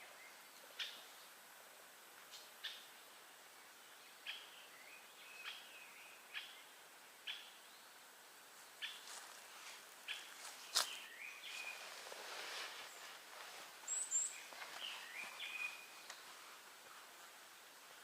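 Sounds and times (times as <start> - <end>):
faint background hiss: 0.0 - 18.0
bird calling: 13.8 - 16.3.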